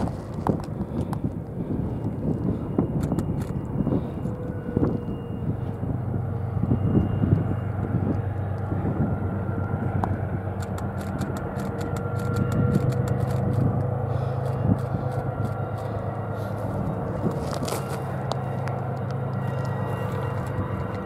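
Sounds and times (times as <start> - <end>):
distant diesel train engines droning: 0.0 - 21.0
sharp crackling clicks: 10.6 - 15.6.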